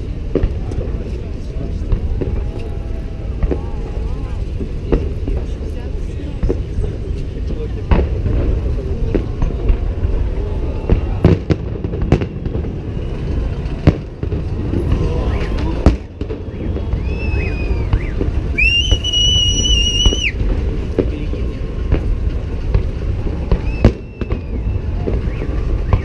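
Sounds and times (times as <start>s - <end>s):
fireworks bangs: 0.0s - 26.0s
high steady whistle: 16.4s - 20.4s, 23.6s - 26.0s.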